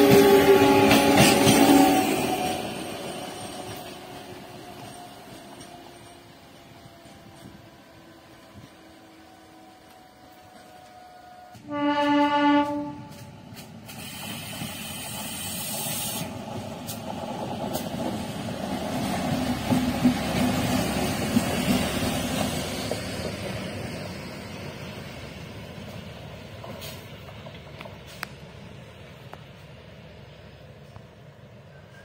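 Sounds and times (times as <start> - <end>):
train horn blast: 0.0 - 2.6, 8.6 - 13.4
rail car running past: 0.0 - 32.0.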